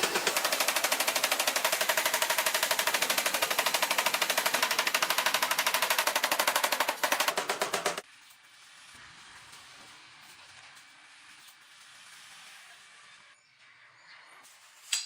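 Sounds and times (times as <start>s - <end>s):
power hammer pounding steel: 0.0s - 8.0s.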